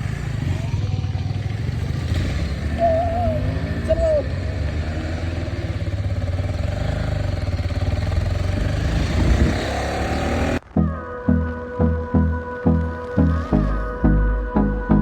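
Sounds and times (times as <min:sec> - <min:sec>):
motorcycle engine running: 0:00.0 - 0:12.0
music with an even beat: 0:10.8 - 0:15.0.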